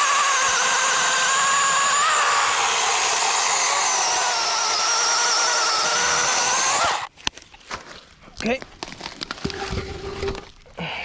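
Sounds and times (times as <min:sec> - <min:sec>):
electric chainsaw cutting log: 0:00.0 - 0:07.1.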